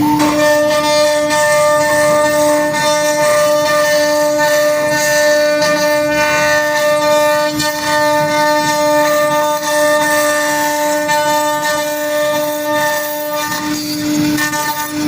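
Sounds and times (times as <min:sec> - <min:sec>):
router spindle cutting wood: 0:00.0 - 0:15.0.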